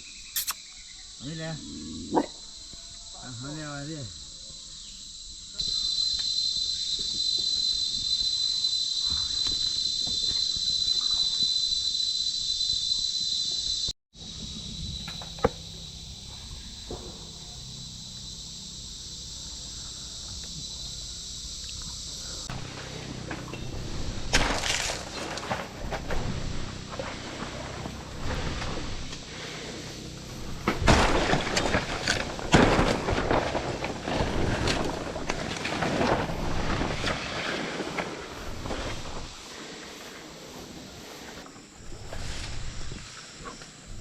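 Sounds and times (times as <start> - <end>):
insects chorus: 0.0 - 44.0
sharp click: 0.3 - 0.7.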